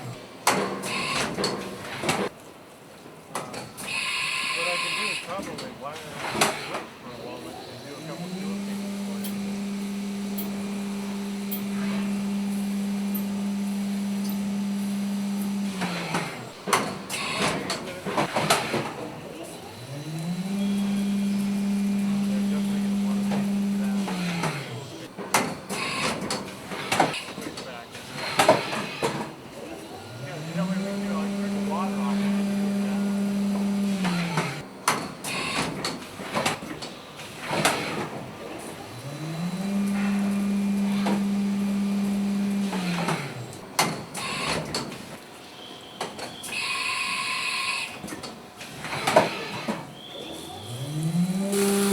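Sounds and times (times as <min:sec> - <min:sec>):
milling machine low hum: 0:07.8 - 0:18.3, 0:19.6 - 0:25.2, 0:29.8 - 0:34.7, 0:38.7 - 0:43.7, 0:50.6 - 0:51.9
mechanical clunks and clicks: 0:08.4 - 0:19.0.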